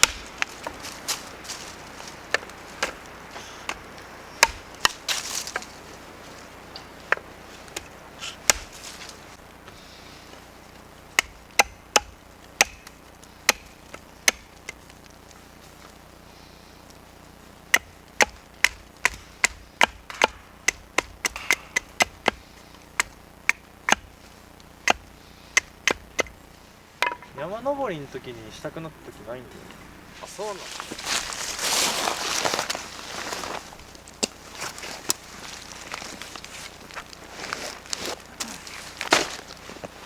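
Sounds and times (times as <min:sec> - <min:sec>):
axe chopping wood: 0:00.0 - 0:01.6, 0:02.3 - 0:05.7, 0:07.1 - 0:09.0, 0:11.1 - 0:14.8, 0:17.7 - 0:26.4, 0:27.0 - 0:27.4.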